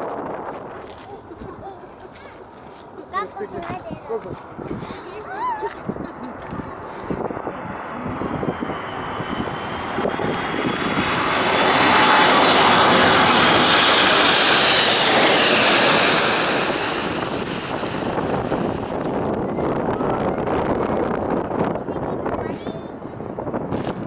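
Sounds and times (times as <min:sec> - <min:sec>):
airliner passing overhead: 0:00.0 - 0:24.0
high whine dropping in pitch: 0:04.2 - 0:21.8.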